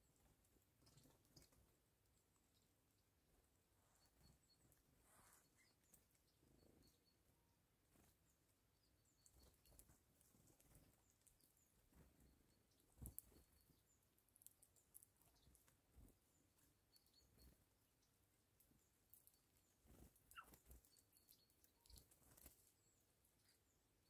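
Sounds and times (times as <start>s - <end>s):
high-pitched bird calls: 20.3s - 22.0s.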